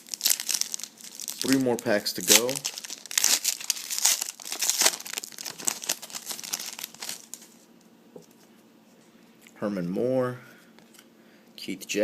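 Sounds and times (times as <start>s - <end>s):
wrapper torn and crinkled: 0.0s - 7.6s.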